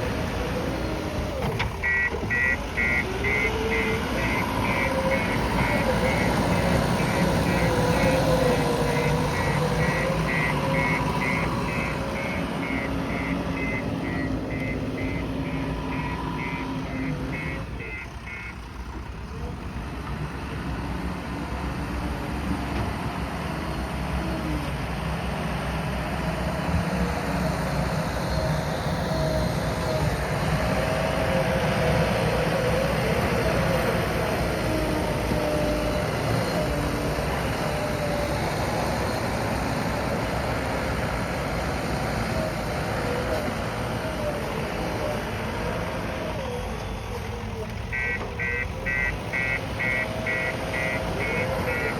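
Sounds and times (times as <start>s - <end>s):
diesel engine under load: 0.0s - 51.9s
reversing alarm beeping: 1.8s - 18.6s, 47.9s - 51.9s.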